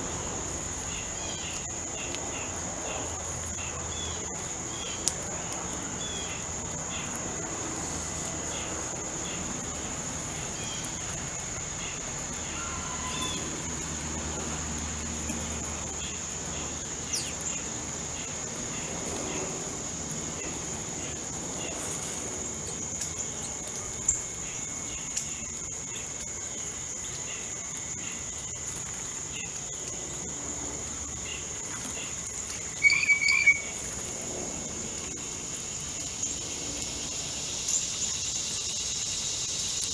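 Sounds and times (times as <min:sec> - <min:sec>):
high-pitched insect drone: 0:00.0 - 0:39.9
bird chirps: 0:31.8 - 0:34.0.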